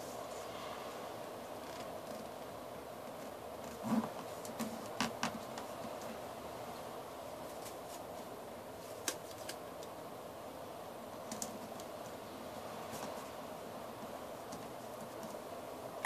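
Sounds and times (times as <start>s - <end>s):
low hiss: 0.0s - 16.0s
paper crackling and folding: 7.4s - 9.9s.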